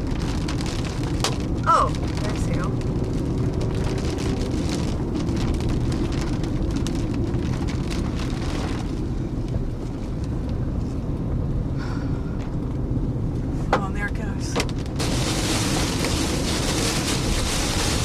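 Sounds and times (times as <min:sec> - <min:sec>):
steady low rumble: 0:00.0 - 0:18.0
hailstones striking a car: 0:14.6 - 0:18.0.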